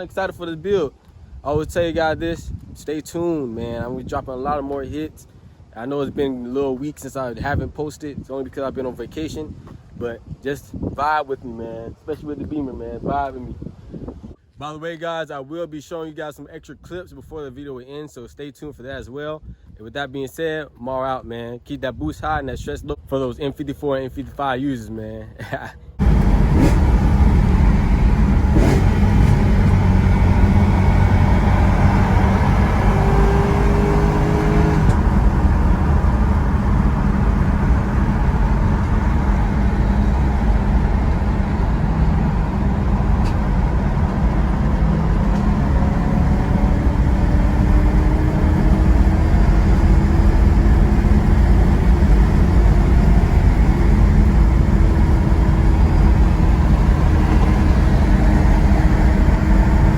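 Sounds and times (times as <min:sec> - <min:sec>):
faint rising tone: 0:26.0 - 0:48.0
car exhaust rumbling: 0:26.0 - 0:59.9.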